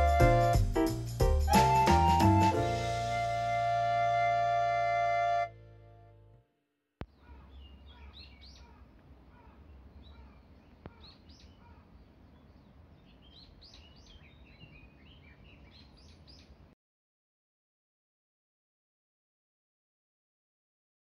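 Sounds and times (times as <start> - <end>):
small birds chirping: 7.0 - 16.8.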